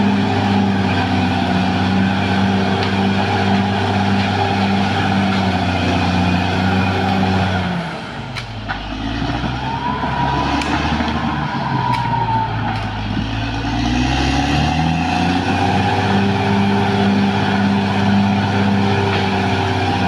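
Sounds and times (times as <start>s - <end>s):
bulldozer diesel engine throbbing: 0.0s - 20.0s.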